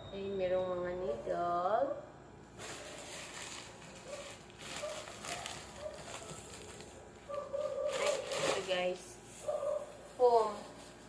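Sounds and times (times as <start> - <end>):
parcel rustling: 2.6 - 11.0.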